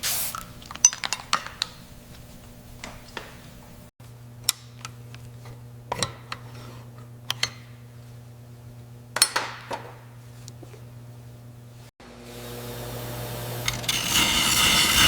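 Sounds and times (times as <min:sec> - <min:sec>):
metal tools clinking: 0:00.7 - 0:01.7.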